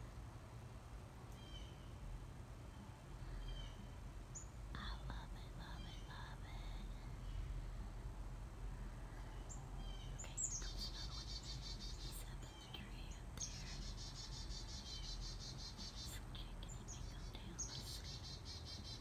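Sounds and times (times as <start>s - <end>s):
small bird trilling: 9.8s - 12.8s, 13.4s - 16.1s.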